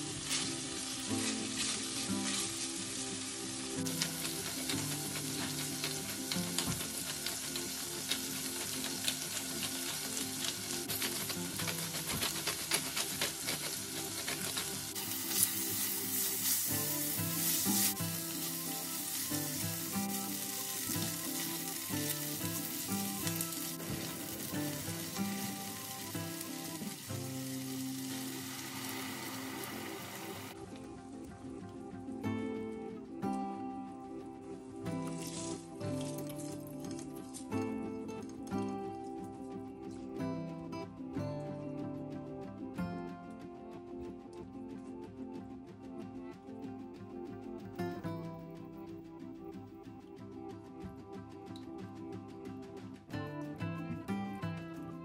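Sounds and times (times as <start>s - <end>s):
chicken sizzling in pot: 0.0s - 30.6s, 35.1s - 37.6s
background music: 0.0s - 55.0s.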